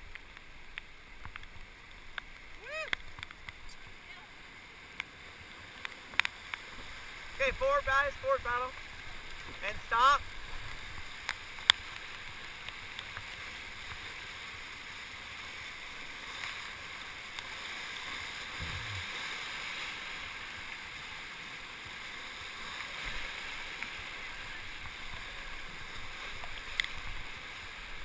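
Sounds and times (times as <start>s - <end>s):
whitewater rushing: 0.1s - 28.0s.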